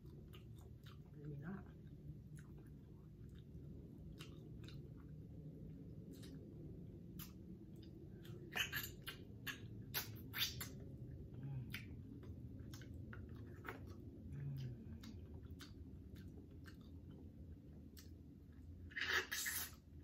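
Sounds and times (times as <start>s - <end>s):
chewing and biting meat: 0.0s - 19.7s
wet mouth clicks and smacks: 6.0s - 11.0s, 19.1s - 19.8s.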